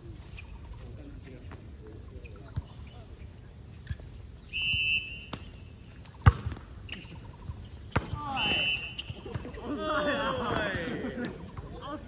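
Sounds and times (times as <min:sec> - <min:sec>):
shoe squeak on court: 0:04.6 - 0:09.5
ball impact: 0:04.6 - 0:09.6.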